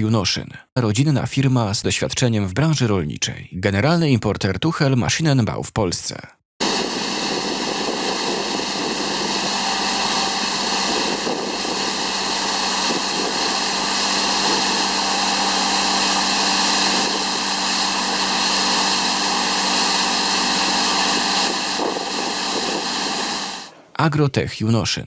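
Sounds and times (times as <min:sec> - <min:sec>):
disc brush spinning against ground: 0:06.6 - 0:23.6
machine engine humming: 0:06.6 - 0:23.8.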